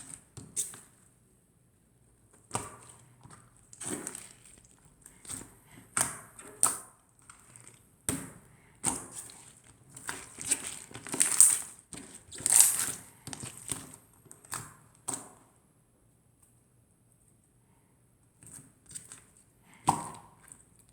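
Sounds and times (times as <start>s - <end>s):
slime popping and crackling: 9.1s - 13.8s.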